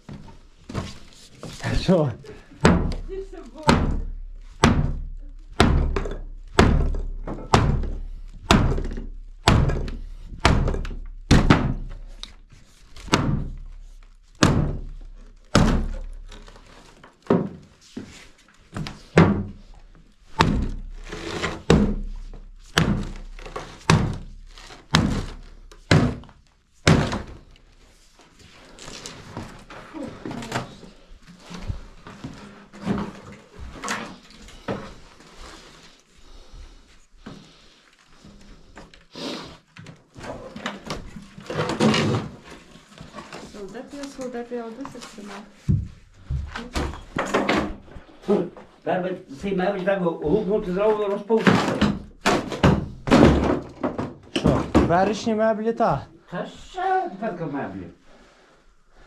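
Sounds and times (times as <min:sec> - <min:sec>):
heavy blows on wood: 0:01.6 - 0:12.2, 0:18.8 - 0:27.5
scattered knocks and clatter: 0:02.6 - 0:12.1, 0:51.4 - 0:55.3.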